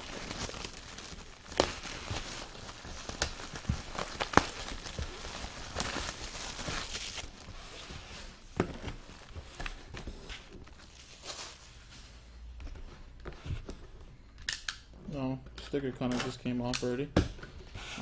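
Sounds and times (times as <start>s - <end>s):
packaging rustling and tearing: 0.0s - 11.9s
cardboard and plastic handling: 0.0s - 13.9s.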